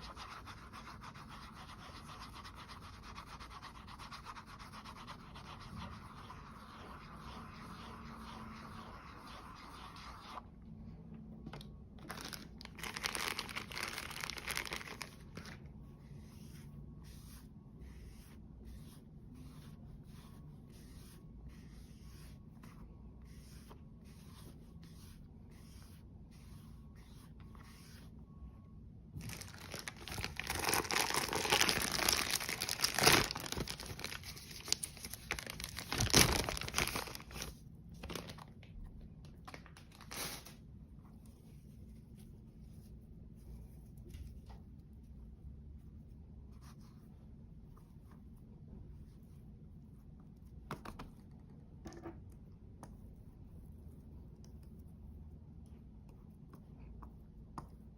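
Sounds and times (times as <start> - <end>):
packaging crinkling and tearing: 12.0 - 15.6, 29.2 - 38.5.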